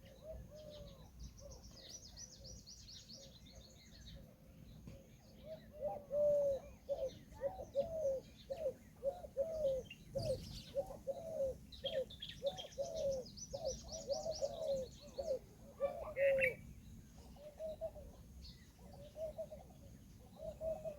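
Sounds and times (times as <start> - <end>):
small birds chirping faintly: 0.0 - 20.9.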